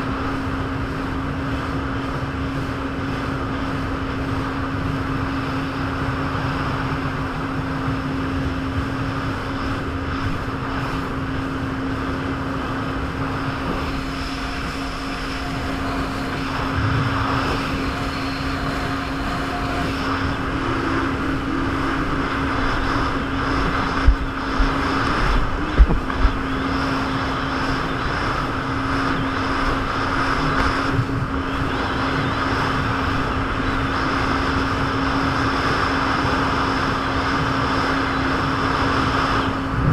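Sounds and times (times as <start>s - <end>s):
jet ski engine droning: 0.0s - 39.9s
water noise: 0.0s - 39.9s
wind: 0.0s - 39.9s.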